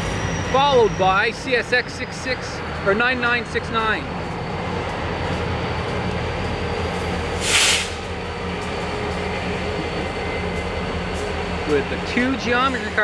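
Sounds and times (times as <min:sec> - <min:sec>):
locomotive low rumble: 0:02.3 - 0:13.0
burst of hiss: 0:07.4 - 0:08.0.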